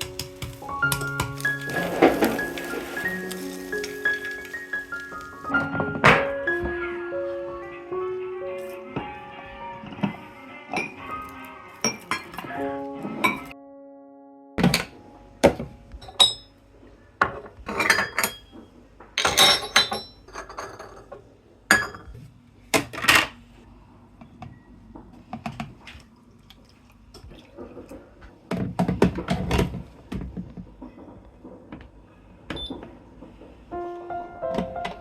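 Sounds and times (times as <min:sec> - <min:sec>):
dishes and cutlery clinking: 0:00.0 - 0:06.3, 0:10.7 - 0:11.1, 0:11.8 - 0:12.6, 0:13.2 - 0:13.6, 0:17.2 - 0:22.2.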